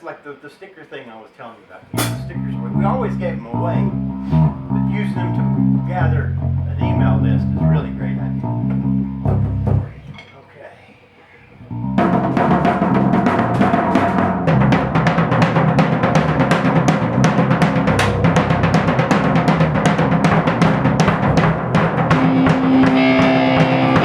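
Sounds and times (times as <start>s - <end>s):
fast drum beats: 1.9s - 2.6s, 12.0s - 24.0s
rock band playing loudly: 12.0s - 24.0s.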